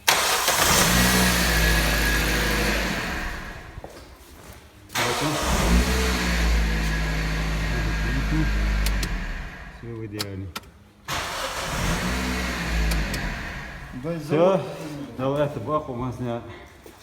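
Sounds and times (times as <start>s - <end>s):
car engine starting and running: 0.0s - 3.9s, 4.9s - 9.9s, 11.1s - 14.3s.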